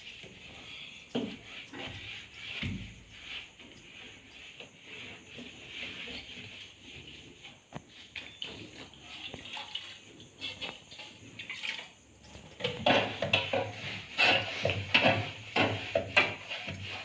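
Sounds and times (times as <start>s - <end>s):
knocks and rubbing: 12.4s - 17.0s.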